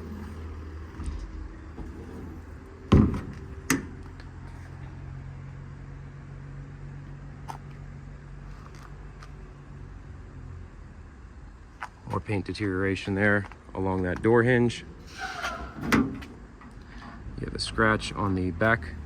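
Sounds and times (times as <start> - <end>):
low steady hum: 0.0 - 19.0
metal compartment door thud: 1.0 - 4.0, 15.4 - 16.4.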